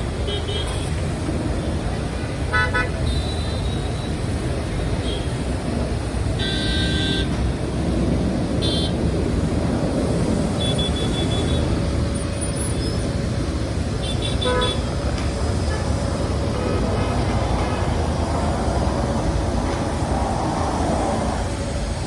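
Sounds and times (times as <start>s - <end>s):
road traffic noise: 0.0s - 22.0s
car horns tooting: 6.4s - 7.4s, 14.0s - 18.2s.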